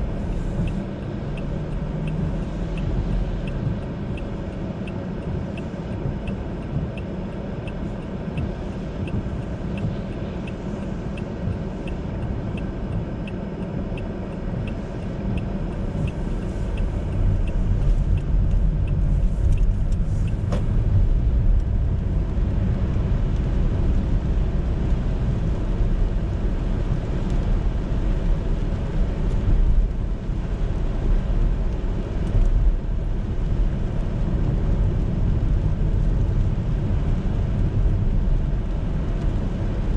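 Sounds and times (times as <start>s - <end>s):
road and engine rumble in car: 0.0s - 39.9s
turn signal ticking: 0.0s - 39.9s.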